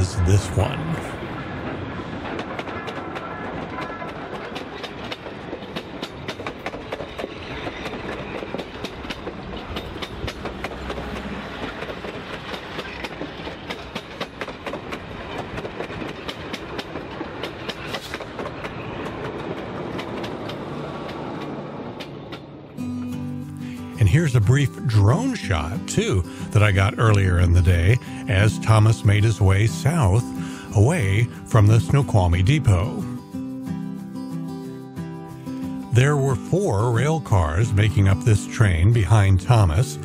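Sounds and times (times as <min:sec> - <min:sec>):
train rumble: 0:00.0 - 0:22.8, 0:24.0 - 0:33.1
train wheels clicking on rails: 0:01.4 - 0:22.7.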